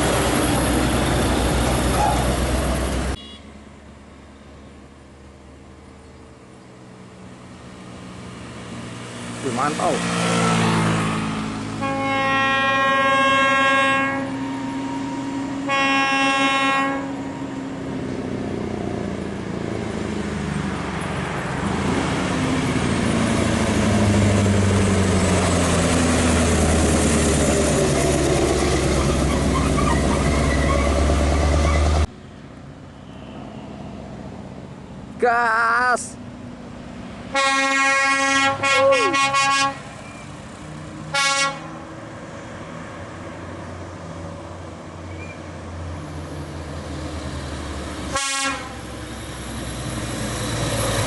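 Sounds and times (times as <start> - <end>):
truck air horn blasts: 3.1 - 3.5, 11.8 - 17.4, 37.3 - 39.9, 41.1 - 41.8, 48.1 - 48.9.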